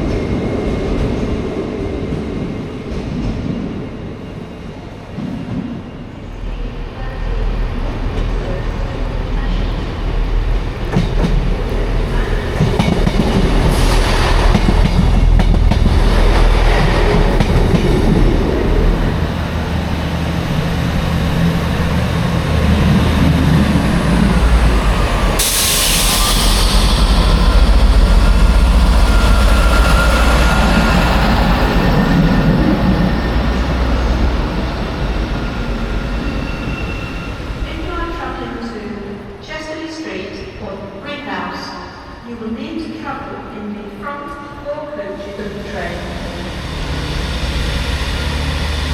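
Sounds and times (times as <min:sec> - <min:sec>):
train rumbling: 0:00.0 - 0:48.9
loud train hiss: 0:24.2 - 0:38.7.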